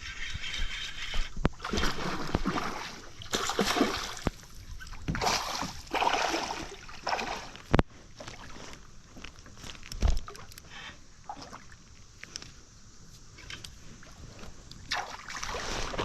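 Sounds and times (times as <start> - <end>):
water splashing around a kayak: 0.0 - 8.9, 11.2 - 12.1, 14.8 - 16.0.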